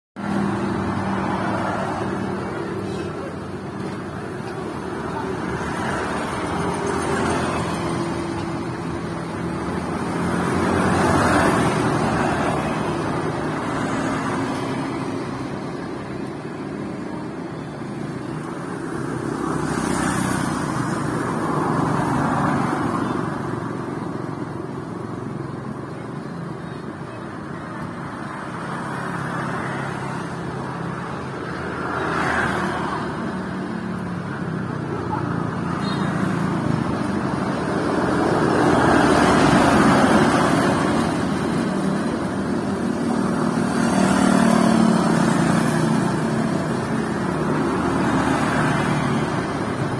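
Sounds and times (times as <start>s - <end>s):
road noise: 0.2s - 49.9s
vehicles passing: 0.2s - 49.9s.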